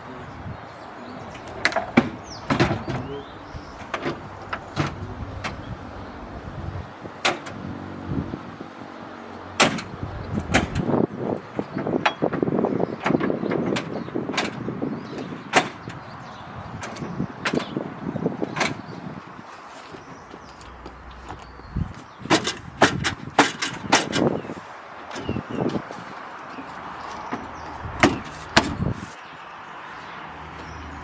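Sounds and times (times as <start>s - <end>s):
knocks and clanks on car body: 1.3s - 5.7s, 7.1s - 7.6s, 9.5s - 16.1s, 16.8s - 19.0s, 22.2s - 24.4s, 27.0s - 29.0s
rattling: 1.3s - 7.6s, 9.6s - 16.1s.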